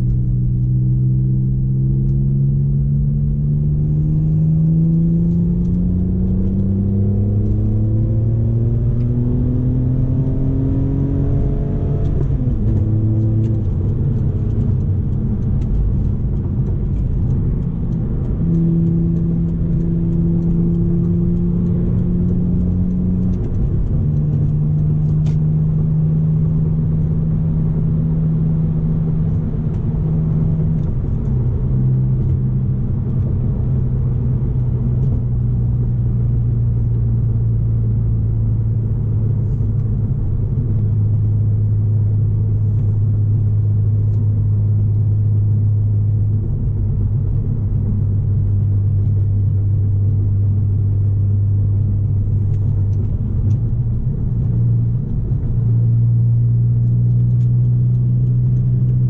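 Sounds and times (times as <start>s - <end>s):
car engine droning: 0.0s - 59.0s
tyre and road rumble: 0.0s - 59.0s.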